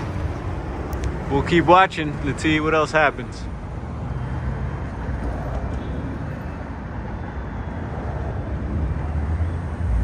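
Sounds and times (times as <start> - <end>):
low outdoor rumble: 0.0 - 4.0.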